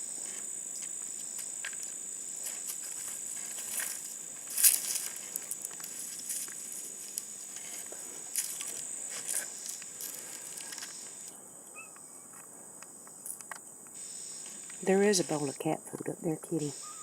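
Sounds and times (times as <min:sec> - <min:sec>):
high-pitched insect chorus: 0:00.0 - 0:17.0
rustles and clicks: 0:00.2 - 0:11.3.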